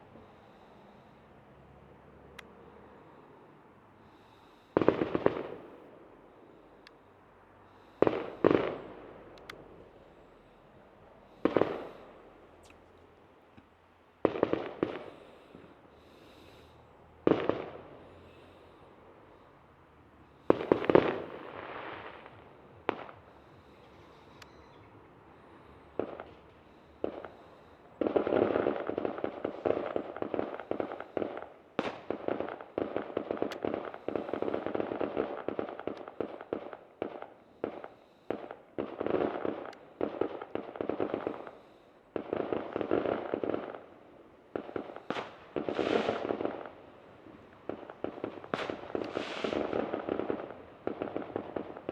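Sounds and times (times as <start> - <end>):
fireworks crackling barrage: 4.1 - 5.9, 7.7 - 10.1, 11.1 - 12.9, 14.2 - 18.8, 20.4 - 24.5, 25.4 - 51.9
fireworks bangs: 4.7 - 5.9, 7.9 - 9.3, 11.4 - 12.4, 14.2 - 16.6, 17.2 - 18.5, 20.4 - 24.5, 26.0 - 51.9.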